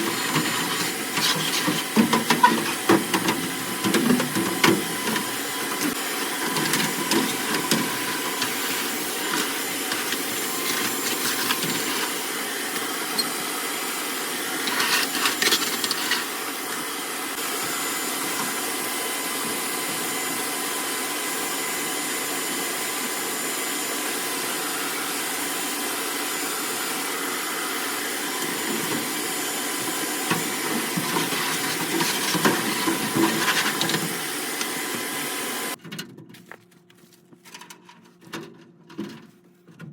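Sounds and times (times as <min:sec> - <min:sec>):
scraping and rattling: 0:00.0 - 0:12.1, 0:14.6 - 0:16.3, 0:30.3 - 0:34.2
machine hissing and whining: 0:00.0 - 0:35.8.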